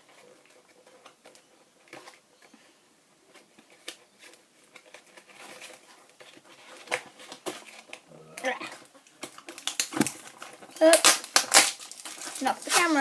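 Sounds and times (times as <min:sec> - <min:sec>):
packaging rustling: 0:03.3 - 0:13.0
plastic packaging clicks and taps: 0:09.2 - 0:12.4.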